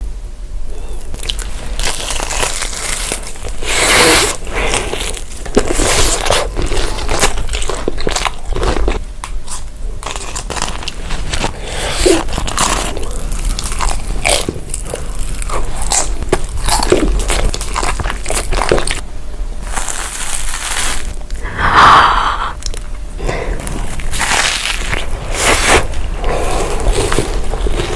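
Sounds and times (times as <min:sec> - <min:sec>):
crisp bites and crunches: 0:01.0 - 0:19.0, 0:19.6 - 0:21.6, 0:22.6 - 0:27.9
wet chewing: 0:01.0 - 0:19.0.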